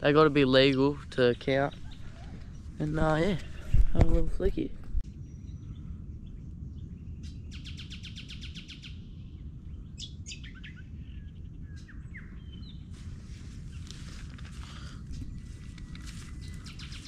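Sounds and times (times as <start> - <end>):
steady low rumble: 0.0 - 17.0
bird trilling: 15.8 - 17.0.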